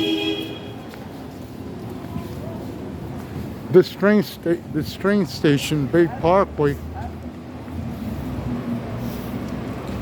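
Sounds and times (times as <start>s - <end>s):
low vehicle rumble: 6.0s - 10.0s.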